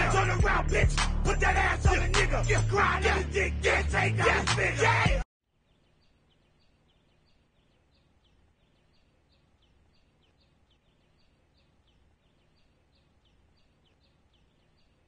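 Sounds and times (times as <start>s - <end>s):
music with beat and vocals: 0.0s - 5.2s
small bird chirping: 5.5s - 15.0s.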